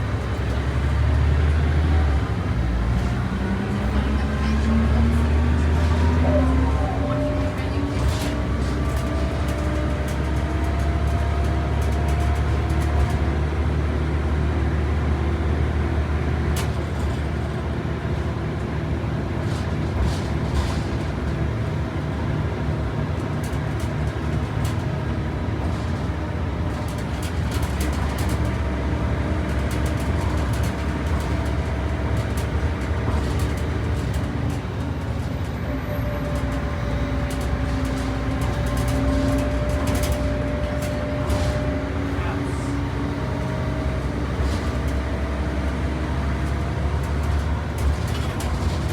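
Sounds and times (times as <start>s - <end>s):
bus engine drone: 0.0s - 48.9s
body rattles and clicks: 25.6s - 35.4s, 36.2s - 42.2s, 42.9s - 48.9s.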